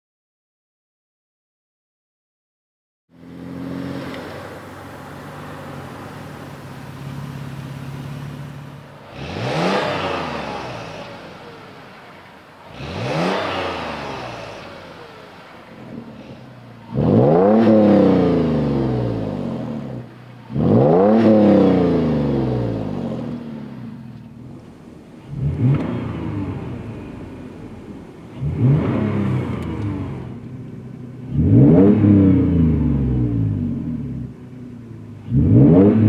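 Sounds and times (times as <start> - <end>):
car engine revving: 3.2 - 36.0.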